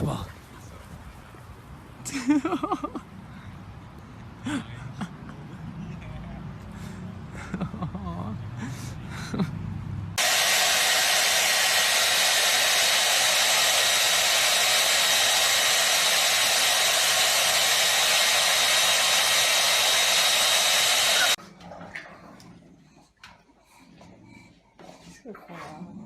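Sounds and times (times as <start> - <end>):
electric blower motor running: 10.2 - 21.4.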